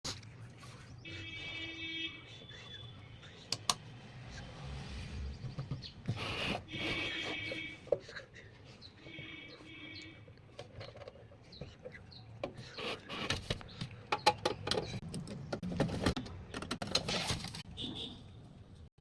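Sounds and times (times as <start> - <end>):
small hard parts clicking and scraping: 10.4 - 17.7.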